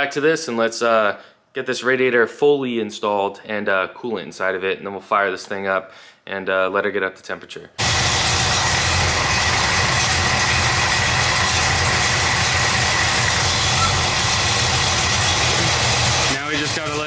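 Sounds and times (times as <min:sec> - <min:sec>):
car engine idling: 0:07.8 - 0:17.0.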